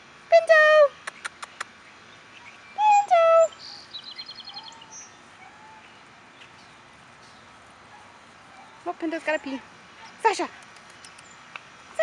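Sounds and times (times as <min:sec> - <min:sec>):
birds calling: 0:01.0 - 0:12.0
high bird trill: 0:02.2 - 0:06.6.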